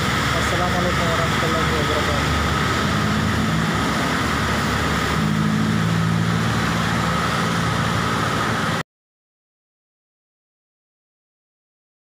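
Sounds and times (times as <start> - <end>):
heavy rain: 0.0 - 8.8
vehicle engine running: 0.0 - 8.8.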